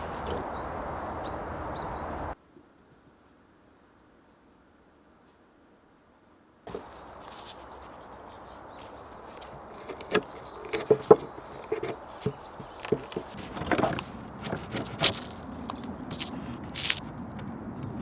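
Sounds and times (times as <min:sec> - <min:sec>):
knocks and clatters: 0:08.8 - 0:17.5.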